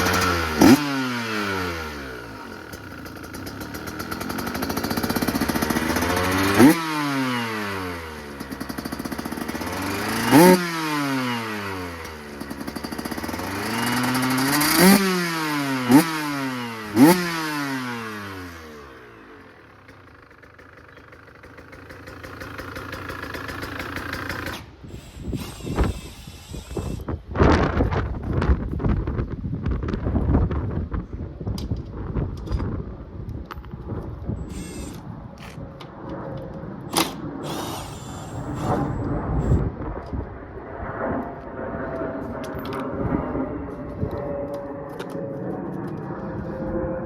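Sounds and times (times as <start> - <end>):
two-stroke engine revving: 0.0 - 27.1, 34.4 - 35.0, 36.9 - 39.8.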